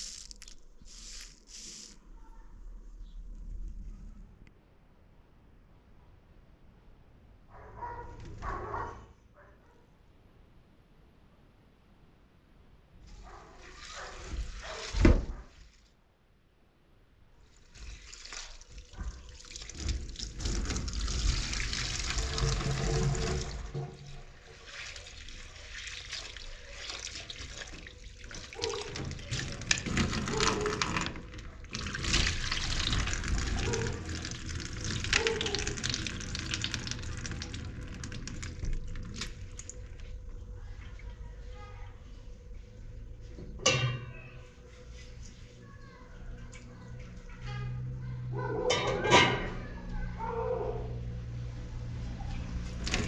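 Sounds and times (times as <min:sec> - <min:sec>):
handling noises: 0:00.0 - 0:02.0
water pouring and splashing: 0:00.0 - 0:02.0, 0:13.2 - 0:15.5, 0:17.5 - 0:41.2, 0:52.6 - 0:53.0.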